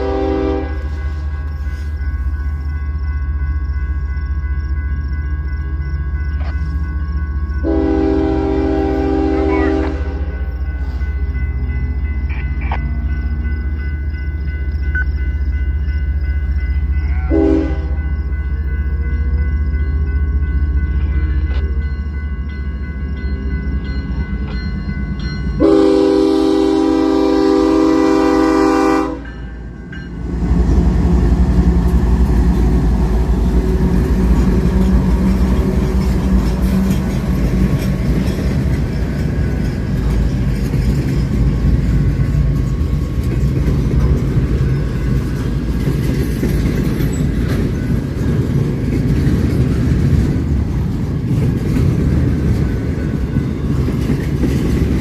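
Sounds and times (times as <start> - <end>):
locomotive horn blast: 0.0 - 1.1, 7.6 - 10.4, 17.1 - 18.0, 25.6 - 29.4
locomotive engine rumble: 0.0 - 55.0
train wheels clattering over rails: 30.1 - 55.0.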